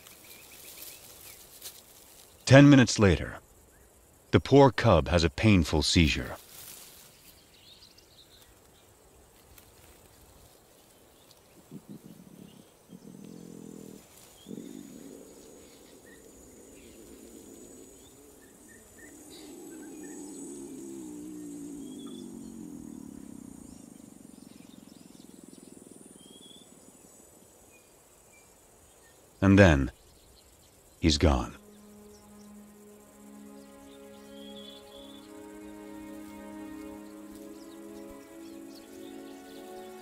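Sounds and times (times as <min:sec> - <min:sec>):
insects: 0:00.0 - 0:40.0
faint bird chirps: 0:10.0 - 0:40.0
lion calling: 0:11.6 - 0:26.7.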